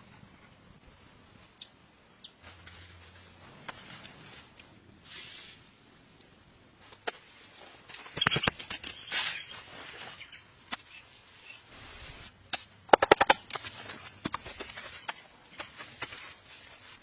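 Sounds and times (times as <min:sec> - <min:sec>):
rustle: 0:00.0 - 0:17.0
wooden branches knocking and cracking: 0:12.5 - 0:16.4.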